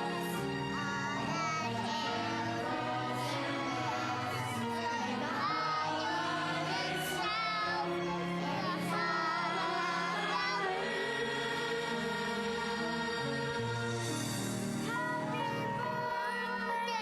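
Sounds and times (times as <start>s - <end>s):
children's choir singing: 0.0s - 17.0s
instrumental accompaniment: 0.0s - 17.0s.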